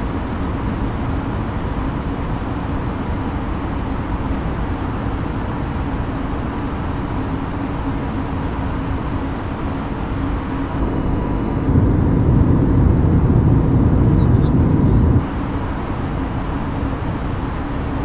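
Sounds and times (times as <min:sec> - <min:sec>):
aircraft engines and airflow roar: 0:08.1 - 0:15.9
faint low hum: 0:10.4 - 0:15.3.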